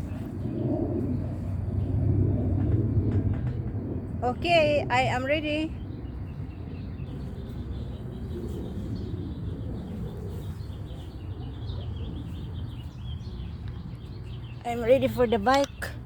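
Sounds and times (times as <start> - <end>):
low background rumble: 0.0 - 16.0
small birds chirping: 0.0 - 16.0.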